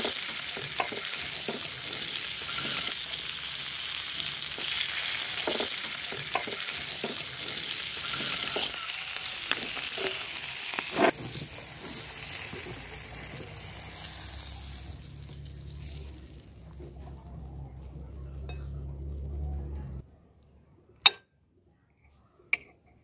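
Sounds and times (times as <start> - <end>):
food sizzling in hot oil: 0.0 - 16.8.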